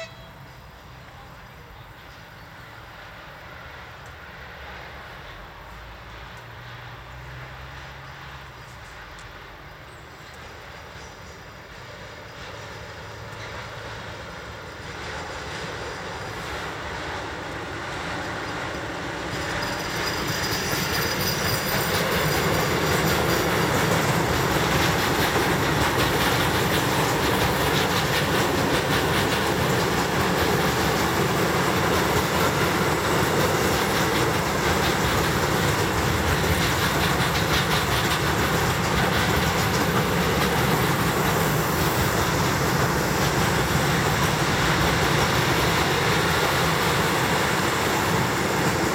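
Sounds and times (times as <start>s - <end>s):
freight train passing: 0.0s - 48.9s
wheels clattering on rail joints: 8.0s - 48.9s.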